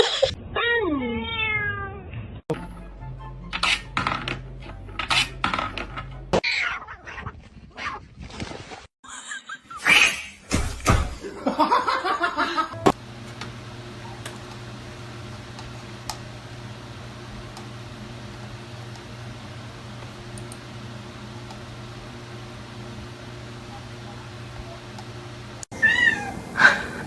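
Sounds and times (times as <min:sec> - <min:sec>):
laughter: 0:09.0 - 0:09.9, 0:11.2 - 0:12.8.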